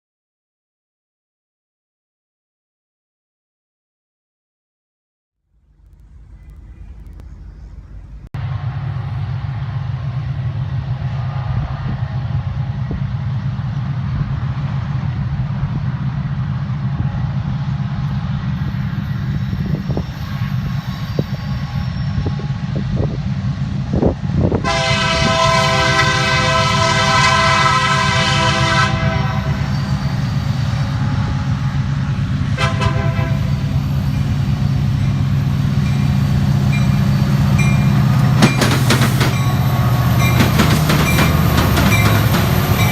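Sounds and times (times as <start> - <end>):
diesel locomotives rumbling: 5.5 - 42.9
train air horn: 24.6 - 34.1.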